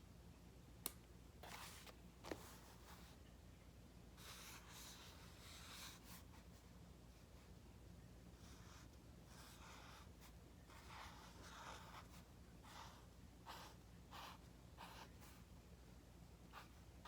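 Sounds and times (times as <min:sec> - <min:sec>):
low steady hum: 0:00.0 - 0:17.0
writing on paper: 0:04.2 - 0:06.6, 0:08.4 - 0:15.5, 0:16.5 - 0:17.0.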